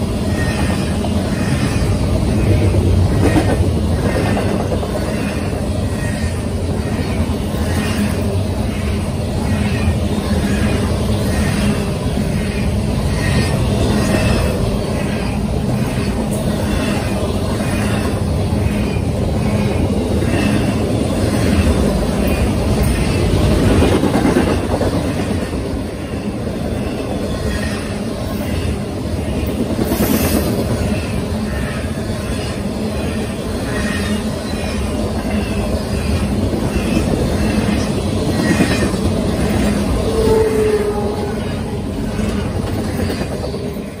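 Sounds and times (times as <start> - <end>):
clickety-clack over rail joints: 0.0 - 44.0
train wheels rumbling on rails: 0.0 - 44.0.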